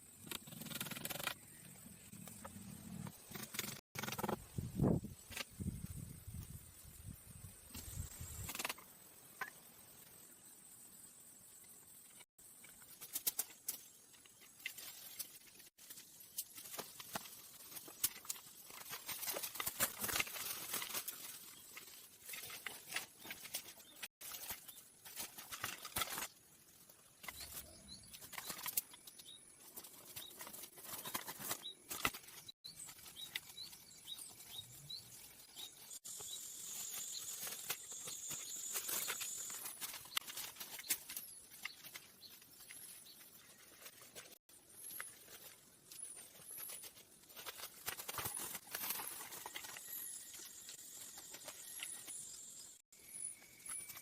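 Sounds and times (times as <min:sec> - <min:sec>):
small birds chirping: 0:11.0 - 0:54.0.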